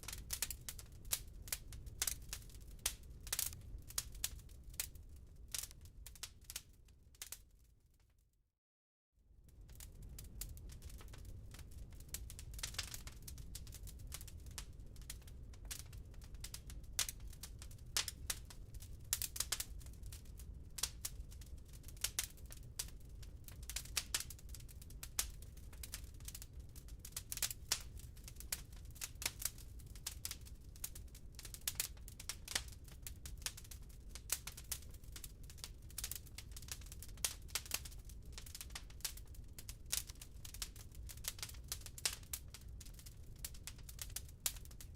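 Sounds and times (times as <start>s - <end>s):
wood fire crackling: 0.0s - 7.7s, 9.4s - 44.9s.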